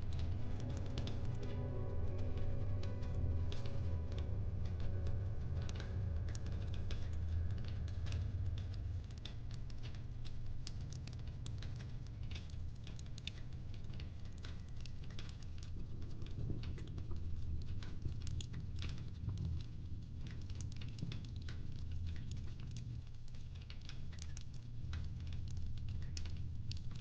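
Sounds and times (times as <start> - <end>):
low steady rumble: 0.0 - 11.5
wood fire crackling: 0.0 - 27.0.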